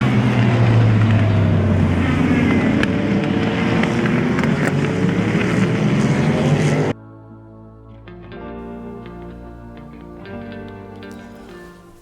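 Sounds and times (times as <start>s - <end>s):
vehicle engine humming: 0.0s - 7.0s.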